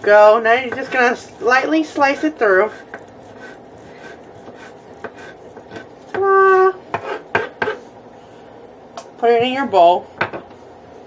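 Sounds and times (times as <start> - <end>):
knife scraping on cutting board: 0.5 - 6.1, 6.9 - 7.9.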